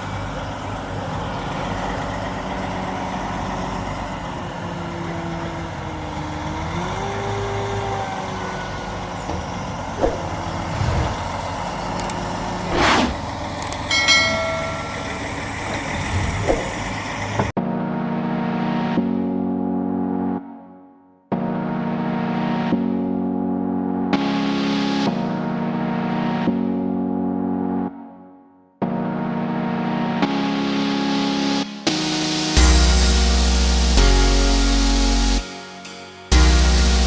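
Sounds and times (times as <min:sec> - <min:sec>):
wood chipper engine running: 0:00.0 - 0:17.5.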